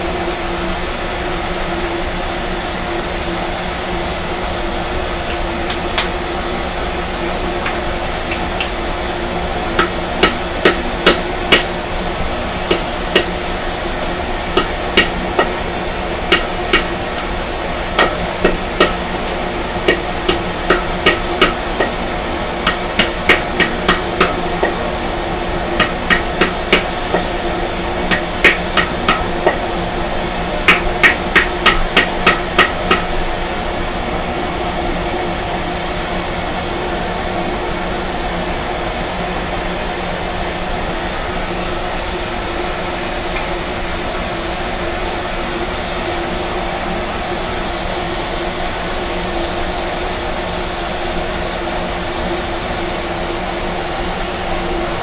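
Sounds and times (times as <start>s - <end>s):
steady mechanical hum: 0.0s - 55.0s
small hammer tapping metal: 7.6s - 8.8s, 9.8s - 11.8s, 12.7s - 13.4s, 14.6s - 15.6s, 16.3s - 17.3s, 18.0s - 22.0s, 22.6s - 24.9s, 25.8s - 29.7s, 30.7s - 33.2s.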